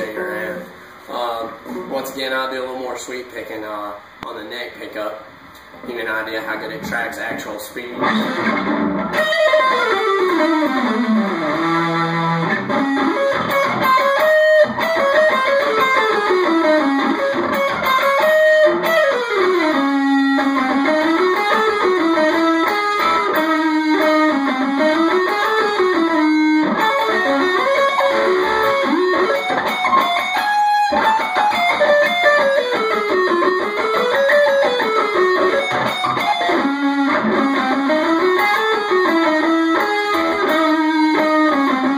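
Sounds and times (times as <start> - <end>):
distorted electric guitar arpeggios: 6.6 - 41.9.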